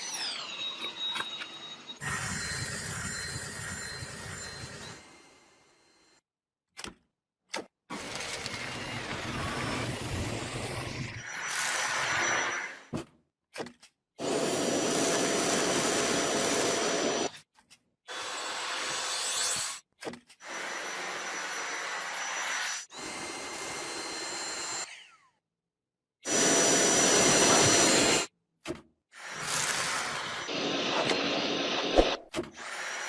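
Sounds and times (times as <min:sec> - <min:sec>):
vacuum cleaner running: 0:14.2 - 0:17.3, 0:26.3 - 0:28.3, 0:29.4 - 0:32.1.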